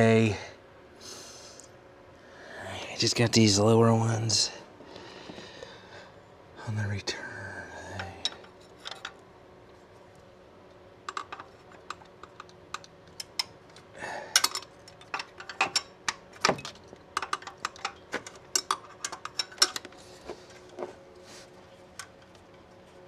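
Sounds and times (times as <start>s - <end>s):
faint steady hum: 0.0s - 23.0s
hand tools clicking and clacking: 11.1s - 20.7s.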